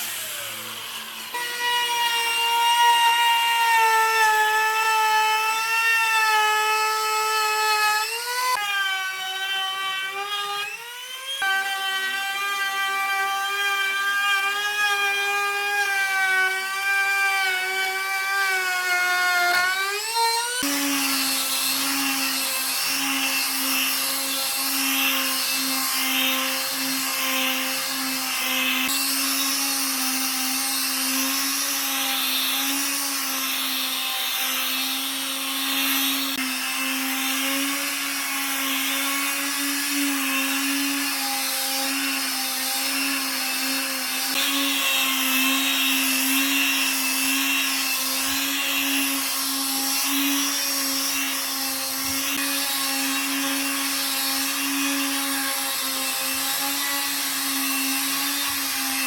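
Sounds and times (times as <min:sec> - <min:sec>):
power tool motor whine: 0:00.0 - 0:06.1.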